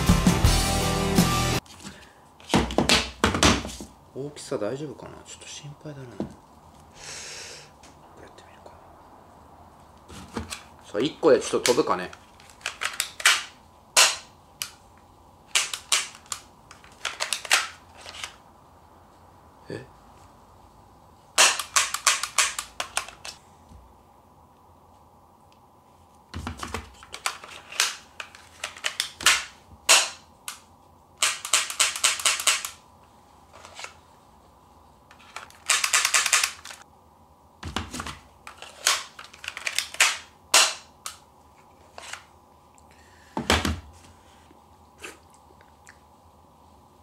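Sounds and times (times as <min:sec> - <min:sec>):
airsoft pistol clicking: 0:31.2 - 0:32.8, 0:35.6 - 0:36.8.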